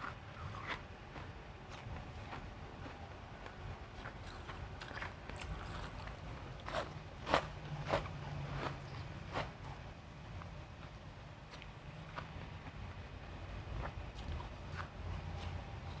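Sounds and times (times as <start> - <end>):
ice being crunched and chewed: 0.0 - 9.6.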